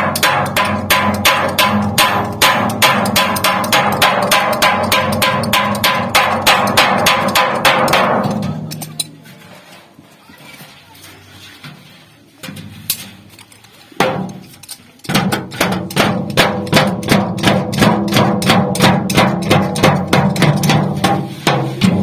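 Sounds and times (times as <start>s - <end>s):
hammer blows on sheet-metal pot: 0.0s - 8.9s, 14.0s - 14.5s, 15.1s - 22.0s.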